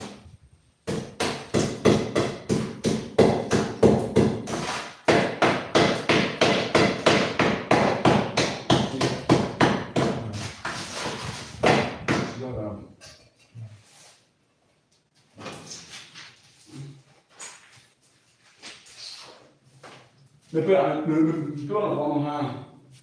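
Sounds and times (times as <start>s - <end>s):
hammer striking: 0.9s - 10.8s.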